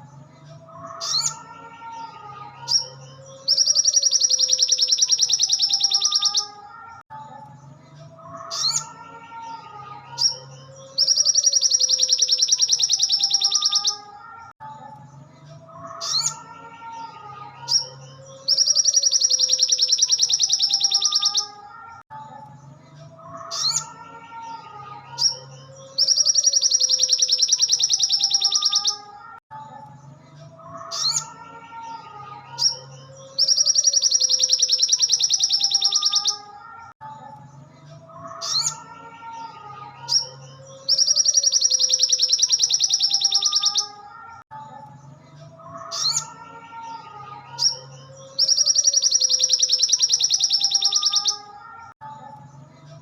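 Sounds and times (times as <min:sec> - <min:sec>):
bird chirps and rattling trill: 0:02.6 - 0:06.6, 0:10.1 - 0:14.1, 0:17.6 - 0:21.6, 0:25.2 - 0:29.0, 0:32.6 - 0:36.5, 0:40.1 - 0:44.0, 0:47.6 - 0:51.5.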